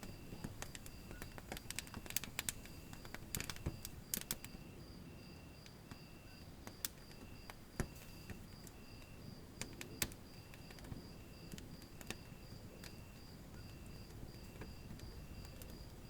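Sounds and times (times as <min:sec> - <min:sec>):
faint high chirping: 0:00.0 - 0:16.0
wood fire crackling: 0:00.0 - 0:16.0.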